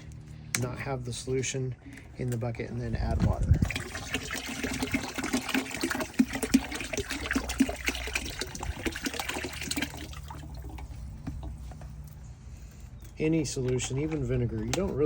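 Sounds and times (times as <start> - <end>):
liquid pouring into water: 3.5 - 11.6.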